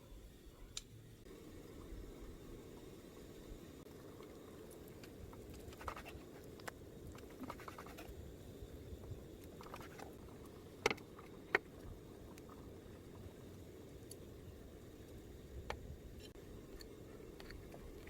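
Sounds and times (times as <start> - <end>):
scratching and rustling: 5.4 - 6.4, 7.2 - 8.1.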